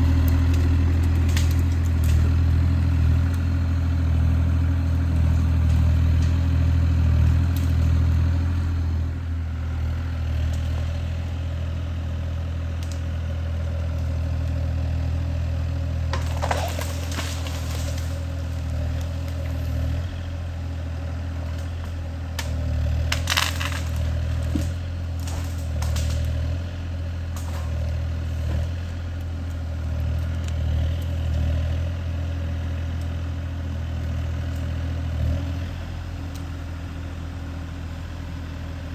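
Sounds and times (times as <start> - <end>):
diesel engine running: 0.0 - 38.9
sharp cracking and clattering: 0.2 - 3.4, 16.1 - 19.6, 21.5 - 26.5.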